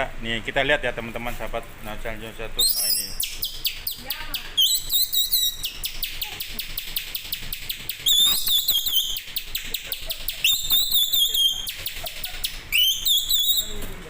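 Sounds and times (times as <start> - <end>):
whistled notes: 2.6 - 4.0, 4.6 - 6.3, 6.9 - 9.7, 10.3 - 13.8
man imitating birdsong: 2.6 - 6.8, 7.7 - 13.8.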